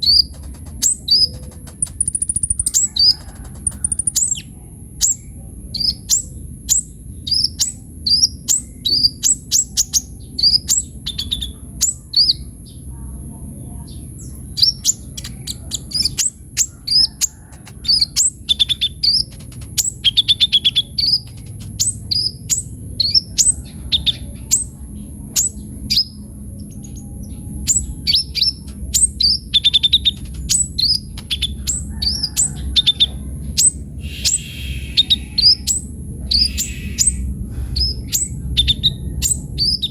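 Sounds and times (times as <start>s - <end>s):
bird singing sharp chirps: 0.0s - 5.2s, 33.6s - 39.9s
low background rumble: 0.0s - 39.9s.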